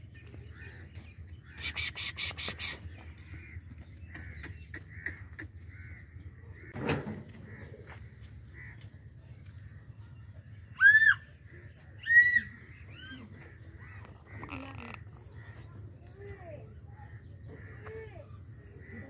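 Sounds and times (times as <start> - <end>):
harsh bird calls: 0.2 - 6.8, 10.6 - 19.0.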